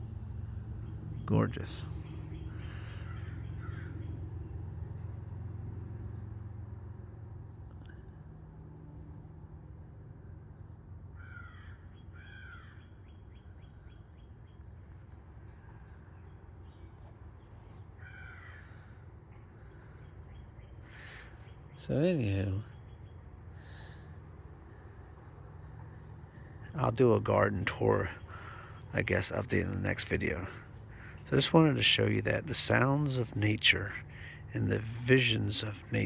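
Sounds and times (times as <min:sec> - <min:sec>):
low hum: 0:00.0 - 0:11.0, 0:20.9 - 0:36.0
pulsing insect trill: 0:00.0 - 0:36.0
crow cawing: 0:01.8 - 0:04.3, 0:11.2 - 0:12.9, 0:18.0 - 0:19.1, 0:20.8 - 0:21.5, 0:27.8 - 0:29.0.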